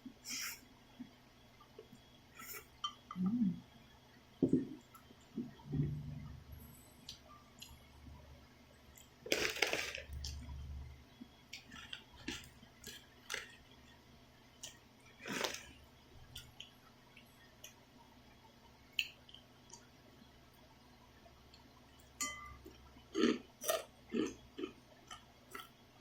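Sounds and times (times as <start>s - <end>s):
noodle slurping: 15.2s - 15.7s.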